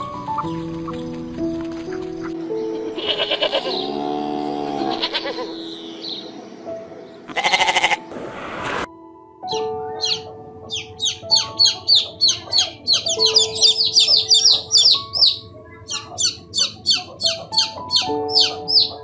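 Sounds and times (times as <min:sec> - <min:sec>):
soft background music: 0:00.0 - 0:19.0
bird chirping rapidly: 0:09.5 - 0:19.0.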